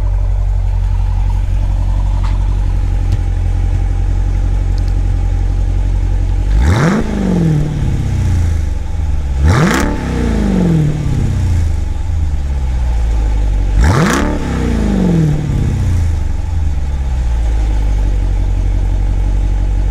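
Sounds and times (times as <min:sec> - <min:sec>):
car engine idling: 0:00.0 - 0:19.9
engine revving: 0:06.2 - 0:18.0.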